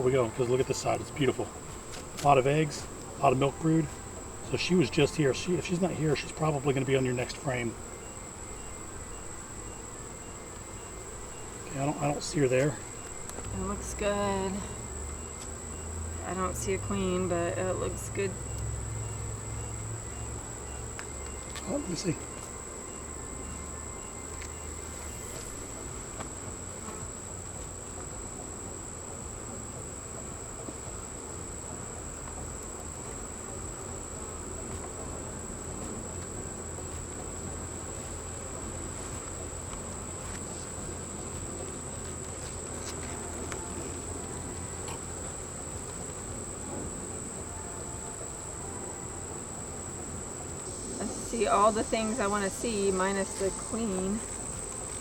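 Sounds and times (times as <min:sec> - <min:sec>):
high-pitched insect tone: 0:00.0 - 0:55.0
honeybees buzzing: 0:00.0 - 0:55.0
faint ticks: 0:18.5 - 0:18.8.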